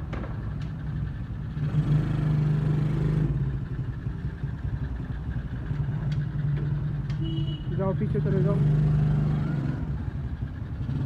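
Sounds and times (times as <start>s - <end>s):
quad bike engine revving: 8.2s - 10.1s.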